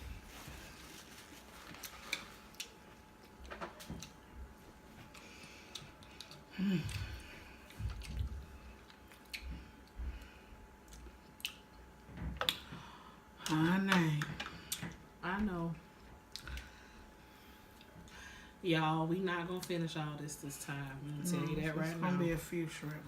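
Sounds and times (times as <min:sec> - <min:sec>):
soft squishy chewing: 0:05.0 - 0:12.6.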